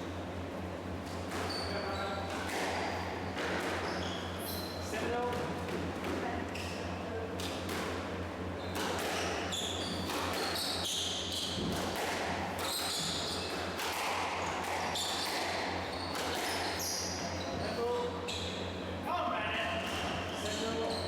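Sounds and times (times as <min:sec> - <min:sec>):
shoes squeaking on court floor: 0:01.1 - 0:05.5, 0:06.2 - 0:07.6, 0:08.6 - 0:18.8, 0:19.8 - 0:21.0
squash ball smacking: 0:11.6 - 0:16.7.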